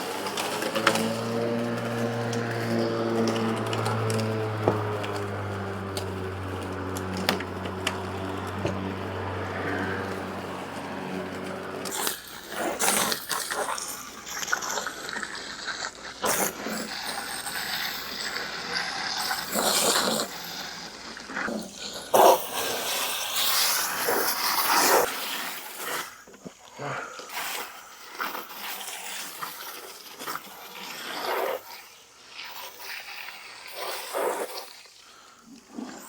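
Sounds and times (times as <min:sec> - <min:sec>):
electric lawn mower motor humming: 0:00.0 - 0:26.4.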